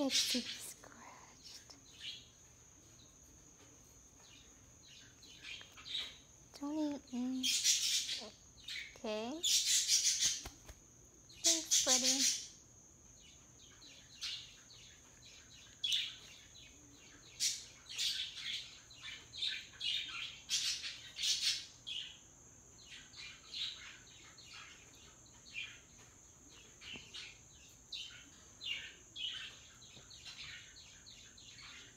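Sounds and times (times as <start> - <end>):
parrot chirps and squeaks: 7.3 - 10.5, 11.4 - 12.6.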